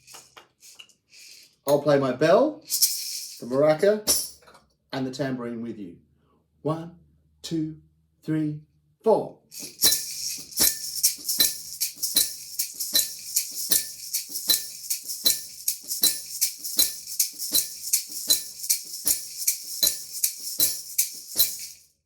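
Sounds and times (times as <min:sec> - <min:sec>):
bell maraca and tambourine beat: 0:00.0 - 0:01.7, 0:02.6 - 0:04.4, 0:09.5 - 0:22.0
continuous high rattle: 0:02.7 - 0:04.3, 0:09.5 - 0:22.0.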